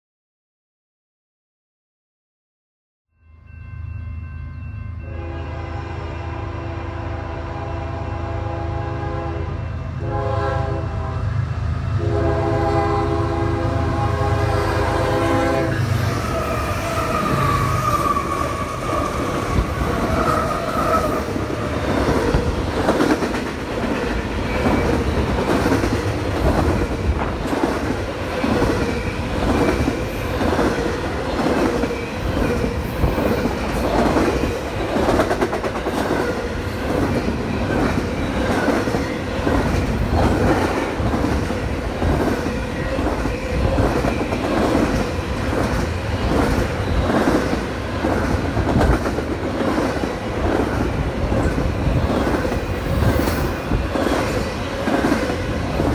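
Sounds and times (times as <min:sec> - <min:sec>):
multi-chime train horn: 0:03.1 - 0:15.9.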